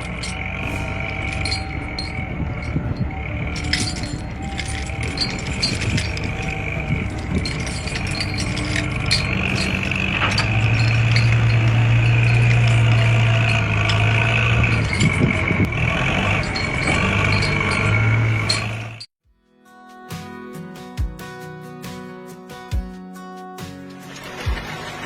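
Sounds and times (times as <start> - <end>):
engine-like hum: 0.0 - 19.1
light clicks and rattles: 1.0 - 15.7.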